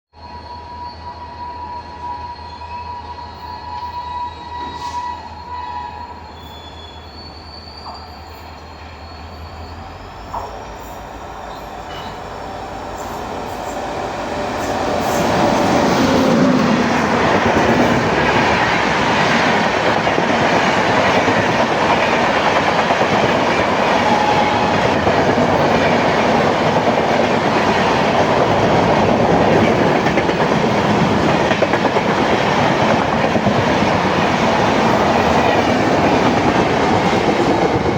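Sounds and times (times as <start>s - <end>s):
train wheels rushing on rails: 4.3s - 37.9s
locomotive horn: 23.8s - 25.1s.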